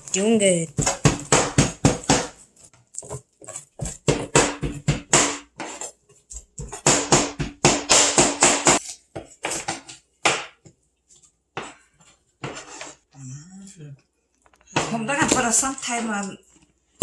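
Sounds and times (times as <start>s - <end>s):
cleaver chopping meat and bone: 0.7s - 2.4s, 3.8s - 5.7s, 6.6s - 10.6s.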